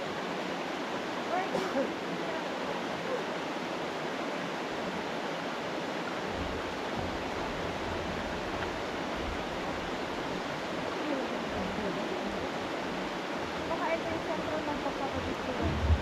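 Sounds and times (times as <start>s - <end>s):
rushing water: 0.0s - 16.0s
low rumble: 15.2s - 16.0s.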